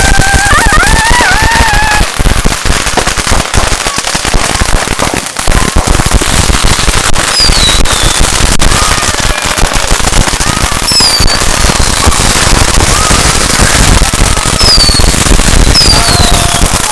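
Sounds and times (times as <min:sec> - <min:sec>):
firecrackers crackling and banging: 0:00.0 - 0:16.9
falling whistle: 0:07.3 - 0:08.2, 0:14.6 - 0:15.1.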